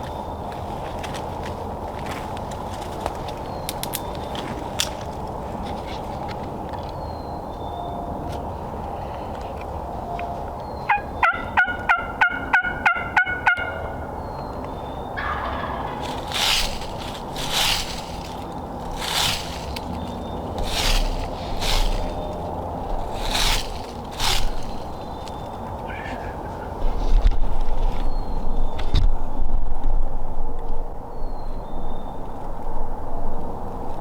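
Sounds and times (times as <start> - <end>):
turkey gobbling: 10.9 - 14.1, 15.2 - 18.4, 23.0 - 26.7.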